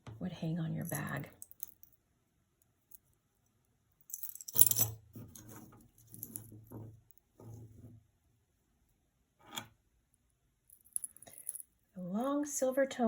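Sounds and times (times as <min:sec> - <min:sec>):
jewelry rattling and rustling: 0:00.7 - 0:02.0, 0:04.0 - 0:07.4, 0:10.7 - 0:11.8
metal jewelry clattering: 0:00.8 - 0:02.0, 0:04.0 - 0:06.8, 0:10.7 - 0:11.7.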